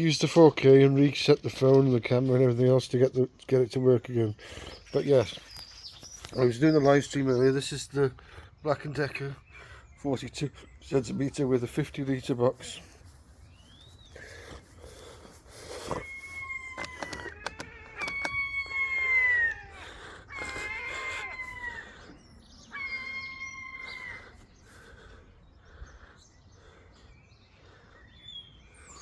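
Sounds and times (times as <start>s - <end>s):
rooster crowing: 16.1s - 22.1s, 22.7s - 24.4s.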